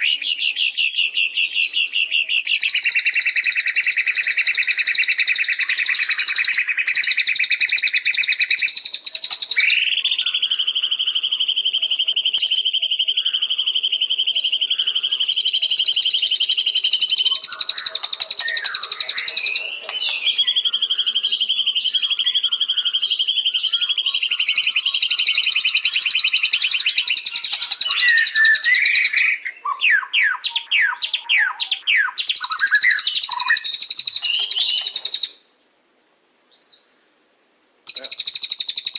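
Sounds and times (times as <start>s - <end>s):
bird singing rapid trills: 0.0s - 35.4s, 37.9s - 38.9s.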